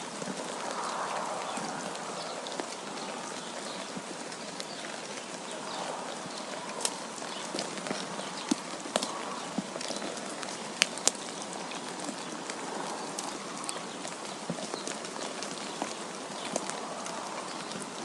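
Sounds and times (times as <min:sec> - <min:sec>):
wind hiss: 0:00.0 - 0:14.5.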